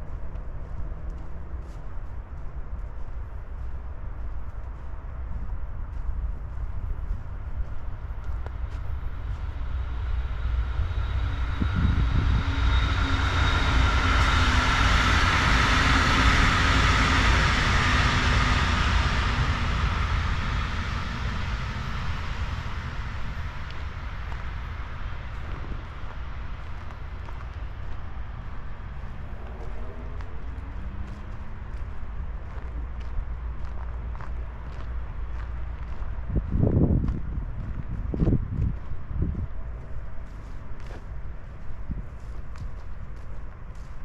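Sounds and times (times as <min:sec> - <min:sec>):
vehicle passing: 0:07.0 - 0:38.3.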